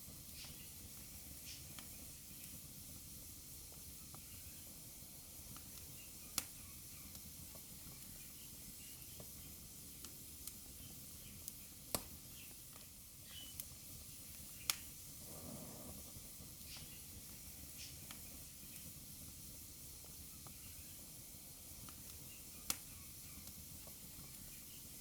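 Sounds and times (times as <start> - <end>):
wood fire hissing and crackling: 0.0 - 25.0
soft rush of flame: 9.8 - 22.8
sharp fire pops: 13.5 - 15.0.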